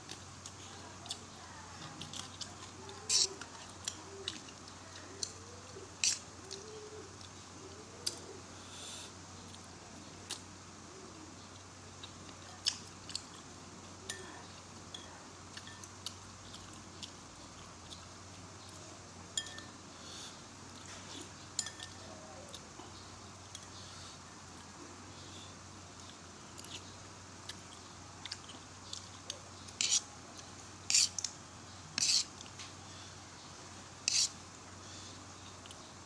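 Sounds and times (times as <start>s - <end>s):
spoon scraping a bowl: 3.1s - 3.4s, 29.8s - 30.1s, 30.9s - 31.3s, 32.0s - 32.3s, 34.0s - 34.4s.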